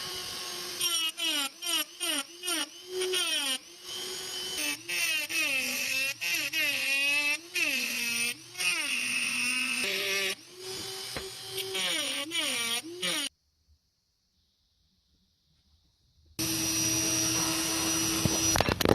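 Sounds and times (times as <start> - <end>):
power tool motor under load: 16.4 - 18.9.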